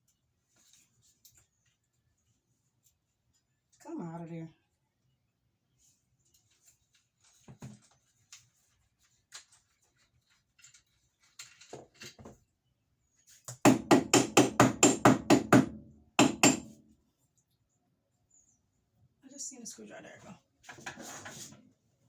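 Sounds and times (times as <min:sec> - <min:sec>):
sharp hammer knocks: 0:13.7 - 0:16.8.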